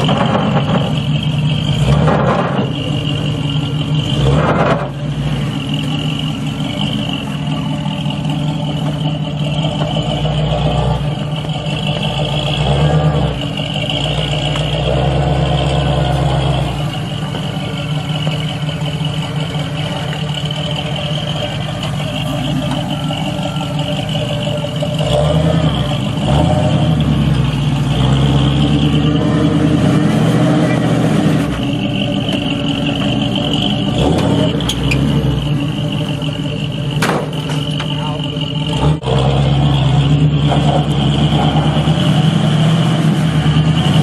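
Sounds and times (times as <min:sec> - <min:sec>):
off-road vehicle engine at low revs: 0:00.0 - 0:44.0.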